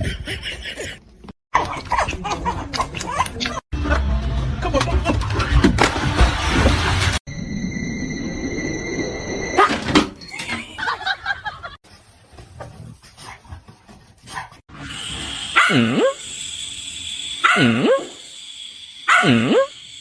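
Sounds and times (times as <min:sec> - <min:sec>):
dog barking: 0:15.6 - 0:16.2, 0:17.4 - 0:18.2, 0:19.1 - 0:19.7.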